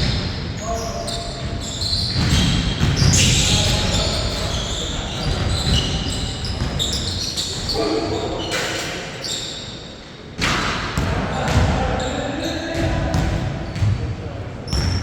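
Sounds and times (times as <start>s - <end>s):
sneakers squeaking on floor: 0.0s - 15.0s
basketball bouncing: 2.1s - 3.4s, 12.8s - 14.0s.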